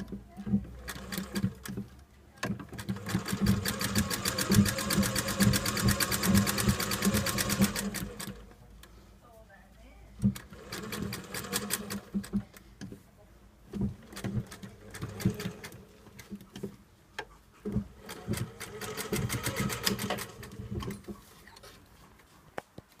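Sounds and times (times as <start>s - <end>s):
sewing machine stitching: 0.0s - 8.5s, 10.2s - 12.5s, 13.7s - 16.4s, 17.6s - 21.2s.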